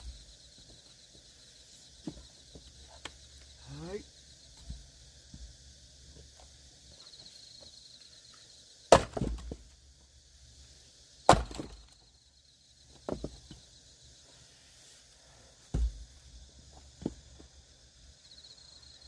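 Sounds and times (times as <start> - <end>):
clatter of split wood: 8.9 - 9.6, 11.3 - 12.0
axe splitting firewood: 8.9 - 9.7, 11.3 - 12.0.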